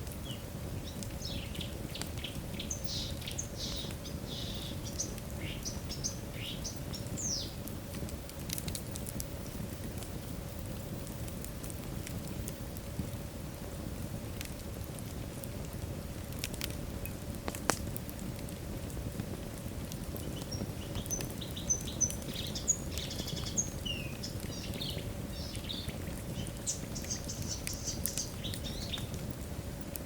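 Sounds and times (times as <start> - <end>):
logs crackling in fireplace: 0.0 - 30.0.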